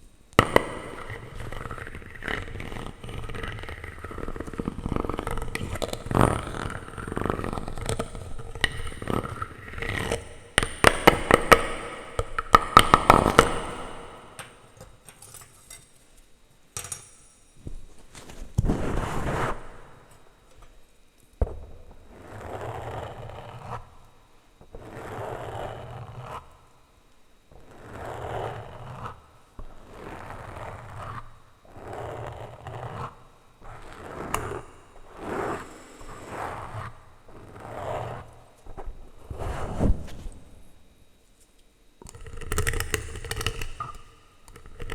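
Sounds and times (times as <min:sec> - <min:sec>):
plastic utensils scraping microphone: 0:27.5 - 0:40.6.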